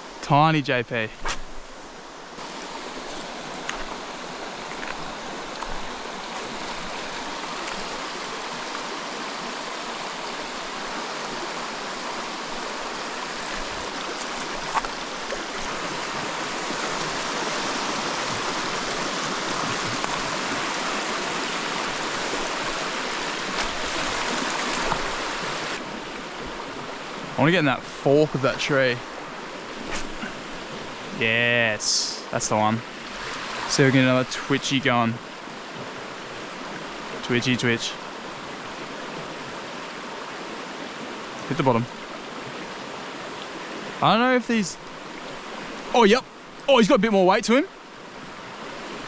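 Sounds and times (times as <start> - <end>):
creek water rushing over rocks: 0.0 - 49.0.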